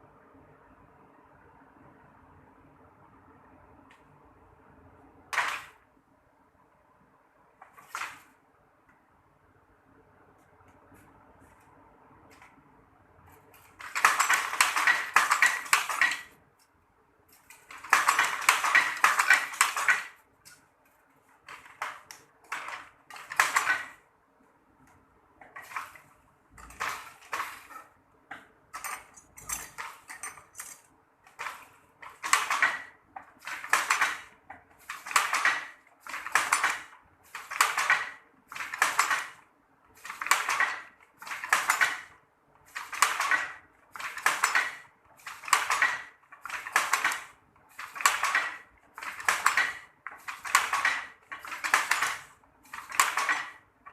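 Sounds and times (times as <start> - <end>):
hand loom clattering: 5.3 - 5.7, 13.6 - 16.4, 17.3 - 20.6, 21.4 - 24.0, 25.4 - 39.4, 40.0 - 53.9.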